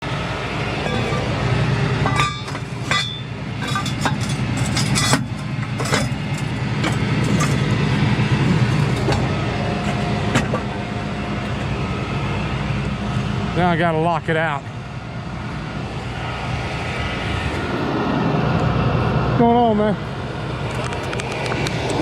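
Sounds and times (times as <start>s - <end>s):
vehicle engine running: 0.0s - 22.0s
metallic clanks and clicks: 2.0s - 7.7s.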